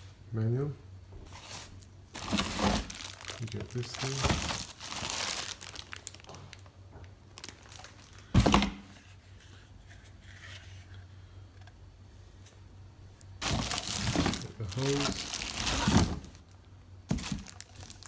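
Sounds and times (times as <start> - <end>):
packaging crinkling and rustling: 1.4 - 8.7, 13.4 - 18.0.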